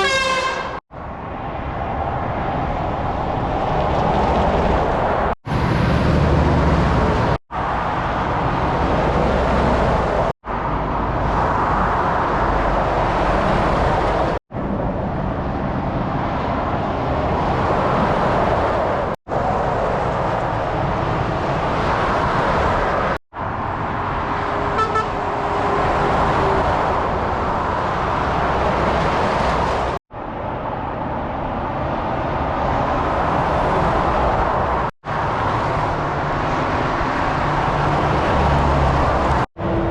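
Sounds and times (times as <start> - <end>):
vehicle horn: 0.0 - 0.8, 24.7 - 25.2
motorway traffic noise: 0.0 - 39.9.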